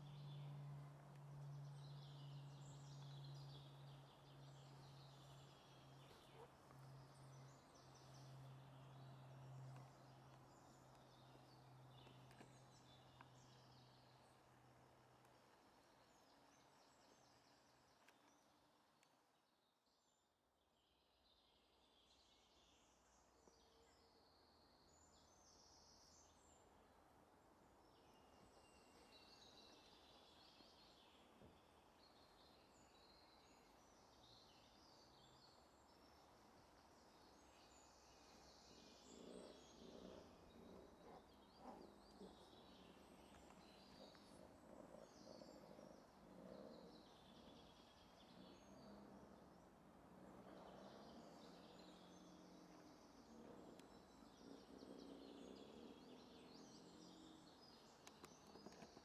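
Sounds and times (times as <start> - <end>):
birds chirping and trilling: 37.2 - 59.0.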